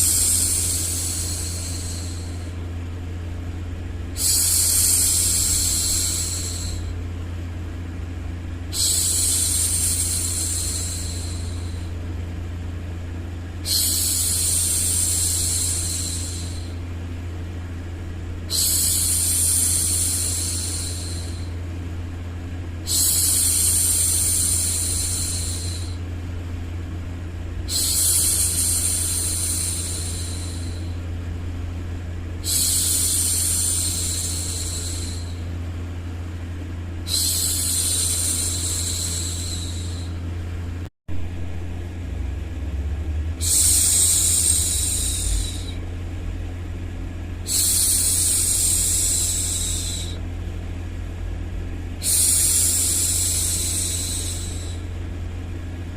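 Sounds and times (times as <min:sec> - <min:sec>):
steady low hum: 0:00.0 - 0:55.9
woman shushing: 0:43.4 - 0:45.8, 0:52.0 - 0:54.9.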